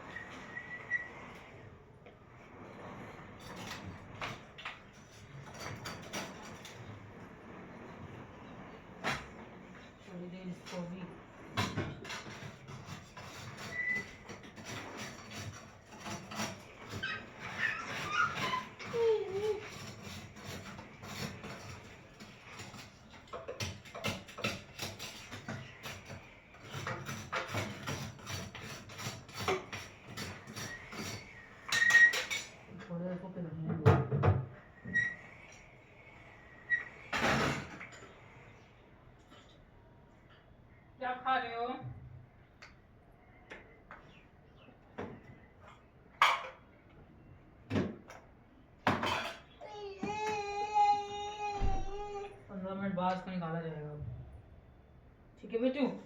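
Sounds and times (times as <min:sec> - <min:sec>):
hard objects knocking and clattering: 0:11.5 - 0:32.7, 0:48.8 - 0:50.5.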